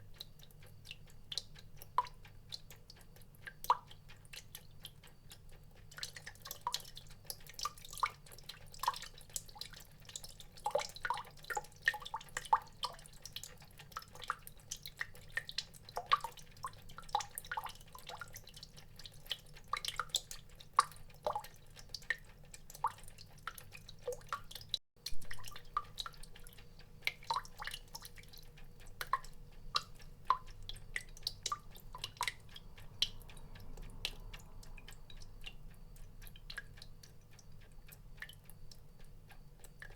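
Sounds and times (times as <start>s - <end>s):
water drops dripping into water: 0.0s - 39.9s
low steady hum: 25.0s - 39.9s.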